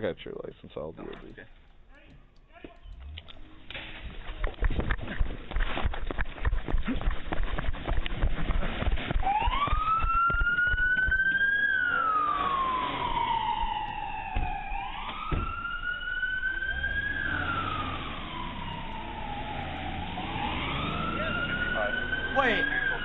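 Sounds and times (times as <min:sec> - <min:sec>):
police siren wailing: 0:09.1 - 0:23.0.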